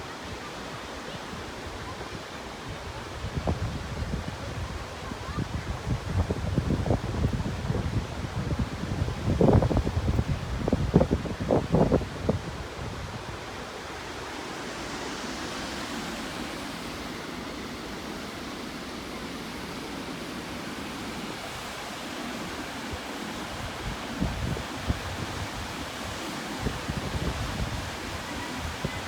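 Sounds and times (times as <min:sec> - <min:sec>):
wind buffeting microphone: 0:02.7 - 0:14.4, 0:21.1 - 0:29.0
waterfall rushing: 0:08.8 - 0:29.0.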